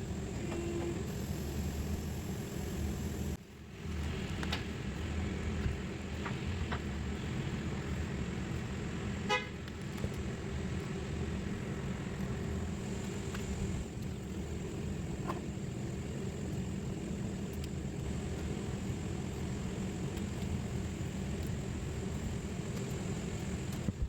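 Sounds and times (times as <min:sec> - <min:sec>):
steady low rumble: 0:00.0 - 0:24.0
faint clicks: 0:17.5 - 0:18.5.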